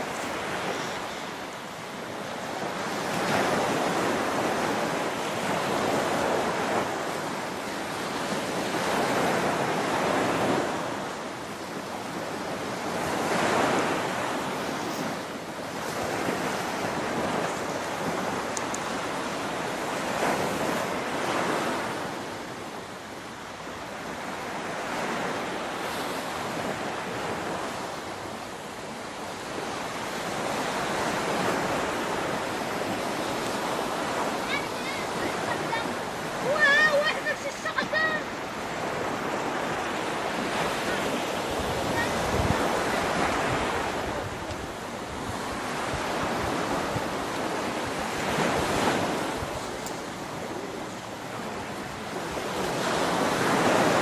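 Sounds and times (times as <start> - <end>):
wind on microphone: 29.2 - 54.0
waterfall roaring: 34.4 - 40.3.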